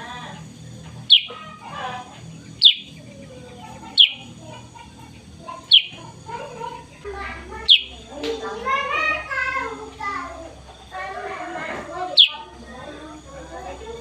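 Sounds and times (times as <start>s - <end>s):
sharp downward bird notes: 1.0s - 1.6s, 2.6s - 3.0s, 3.9s - 4.3s, 5.7s - 6.0s, 7.6s - 8.1s, 12.1s - 12.5s
soft bird warbling: 1.0s - 6.2s, 7.6s - 8.1s, 12.1s - 12.6s.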